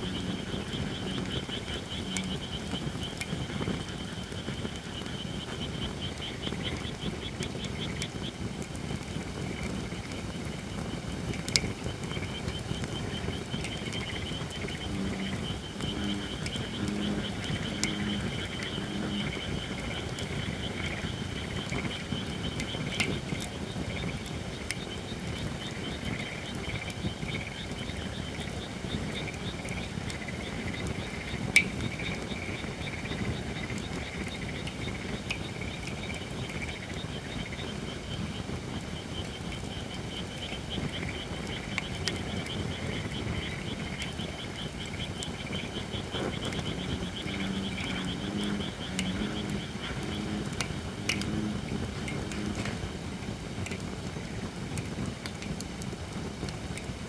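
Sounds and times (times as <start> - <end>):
low droning animal call: 0.0 - 2.8, 14.6 - 20.4, 45.6 - 53.0
high chirring insect chorus: 0.0 - 55.4
campfire hissing and crackling: 0.0 - 57.0.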